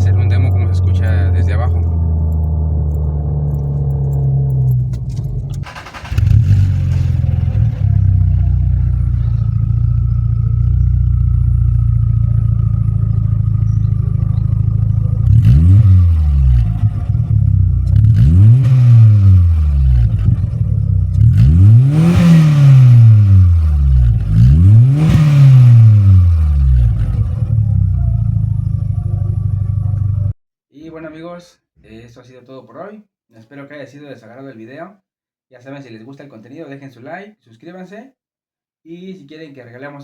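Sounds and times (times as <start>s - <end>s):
car engine idling and revving: 0.0s - 30.4s.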